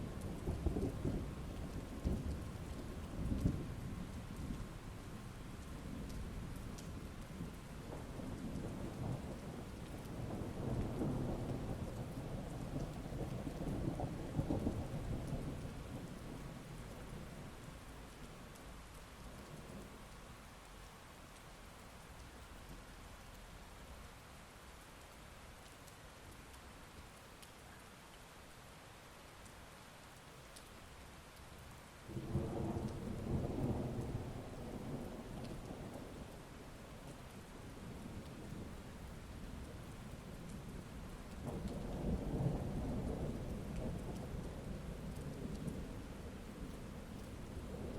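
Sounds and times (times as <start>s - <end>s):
heavy rain: 0.0s - 47.9s
thunder rumbling: 7.4s - 17.6s, 32.1s - 47.9s.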